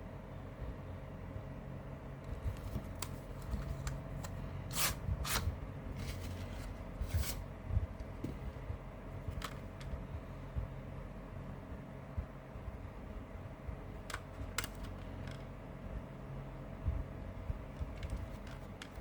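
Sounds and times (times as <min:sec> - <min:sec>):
steady low hum: 0:00.0 - 0:19.0
paper insert rustling: 0:02.5 - 0:07.4
cd case clicks: 0:02.6 - 0:04.4, 0:09.3 - 0:10.0, 0:14.0 - 0:15.5, 0:17.9 - 0:19.0.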